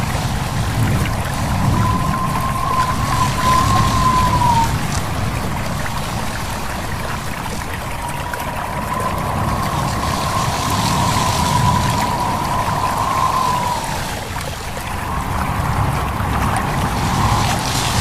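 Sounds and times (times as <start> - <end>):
stream babbling: 0.0 - 18.0
wind in leaves: 0.0 - 18.0
thin wavering whistle tone: 1.3 - 5.1, 7.5 - 18.0.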